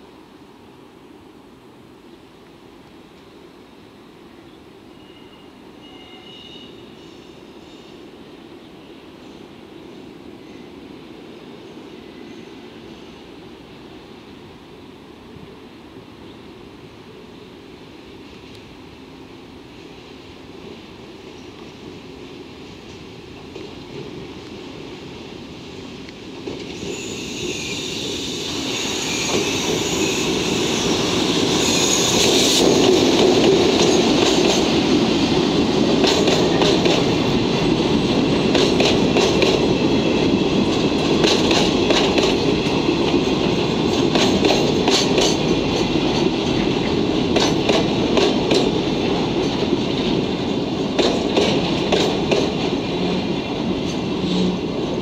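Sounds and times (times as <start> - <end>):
freight train rumbling past: 4.9 - 55.0
wheels clacking over rail joints: 32.1 - 55.0.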